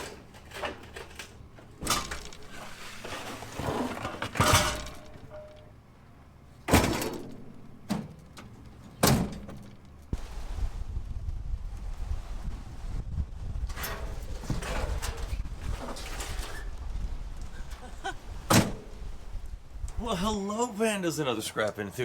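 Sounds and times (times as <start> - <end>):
objects crashing and breaking: 0.0 - 5.7.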